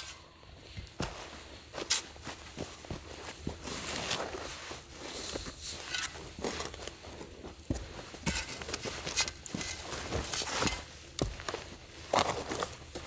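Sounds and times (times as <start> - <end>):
footsteps on forest ground: 0.0 - 13.0.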